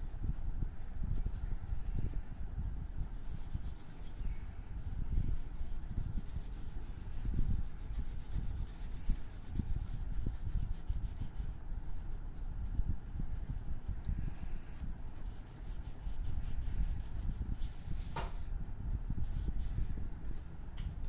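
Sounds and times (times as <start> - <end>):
colouring strokes on paper: 0.8 - 12.2, 14.8 - 18.2, 19.2 - 20.5.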